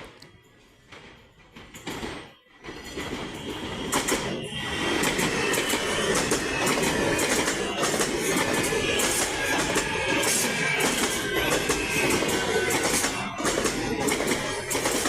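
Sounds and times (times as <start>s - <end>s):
electric train pulling in: 0.0s - 15.0s
wheels and brakes squealing: 2.6s - 15.0s
clicking over rail joints: 5.0s - 15.0s.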